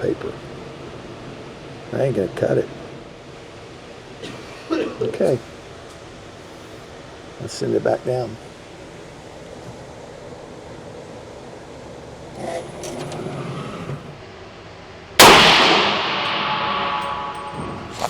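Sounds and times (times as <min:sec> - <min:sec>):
loud ringing bang: 0:15.2 - 0:18.0.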